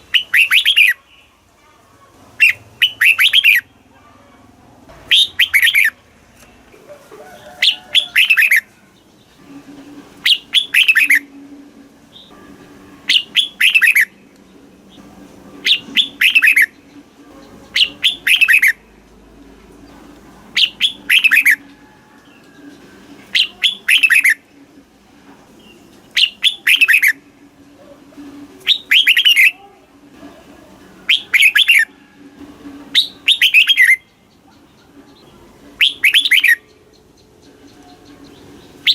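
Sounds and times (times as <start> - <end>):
bird singing whistled phrases: 0.1 - 1.0, 2.4 - 3.7, 5.1 - 6.0, 10.2 - 11.3, 13.1 - 14.1, 15.6 - 16.8, 17.8 - 18.8, 20.6 - 21.6, 23.3 - 24.4, 26.2 - 27.2, 28.6 - 29.6, 31.1 - 31.9, 33.0 - 34.1, 35.8 - 36.7.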